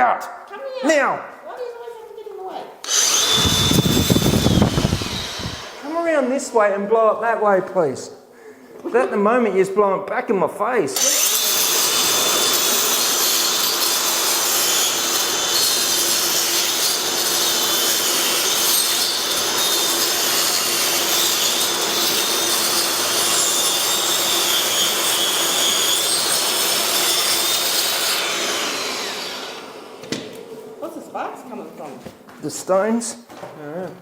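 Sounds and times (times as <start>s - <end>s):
angle grinder cutting brick: 2.8s - 6.4s, 11.0s - 30.0s.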